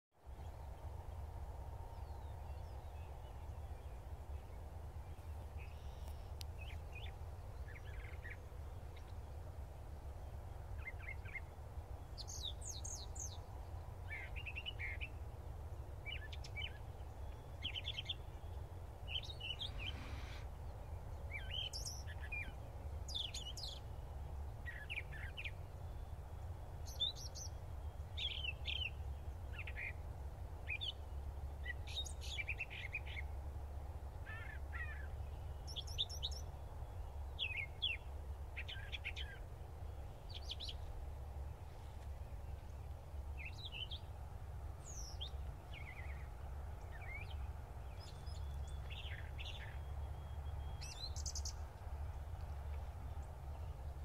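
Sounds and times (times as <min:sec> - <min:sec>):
small birds chirping: 0:01.9 - 0:09.4, 0:10.3 - 0:33.5, 0:34.2 - 0:54.0.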